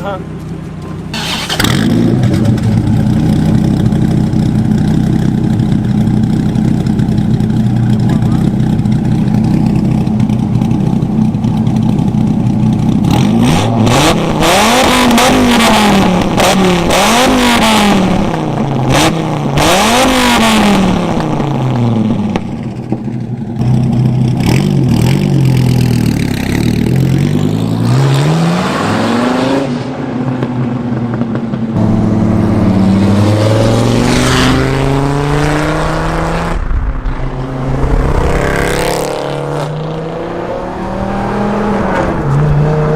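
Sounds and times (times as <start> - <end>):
sports car engine revving: 1.2 - 22.4, 31.1 - 42.9.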